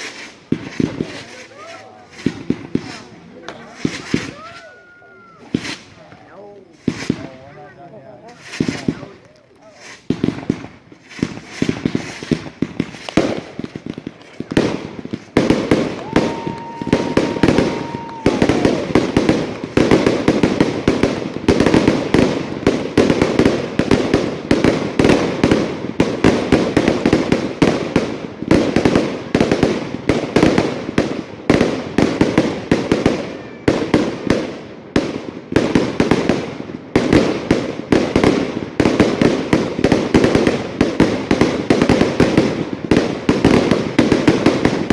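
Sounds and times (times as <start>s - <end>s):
fireworks crackling: 0.0s - 44.9s
firework whistle: 3.8s - 5.9s, 15.8s - 19.2s.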